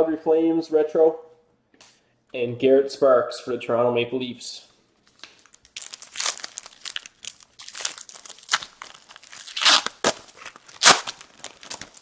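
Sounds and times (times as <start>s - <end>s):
foil wrappers tearing and crinkling: 5.1s - 12.0s.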